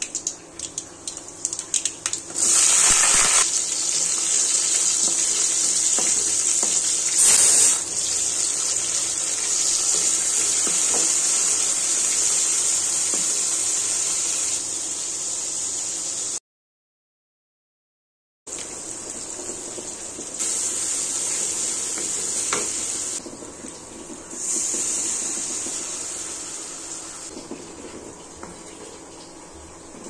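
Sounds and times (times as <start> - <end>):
hot oil crackling and popping: 0.0 - 14.6
vegetables sizzling in a pan: 2.3 - 16.4, 18.5 - 23.3, 24.3 - 27.3.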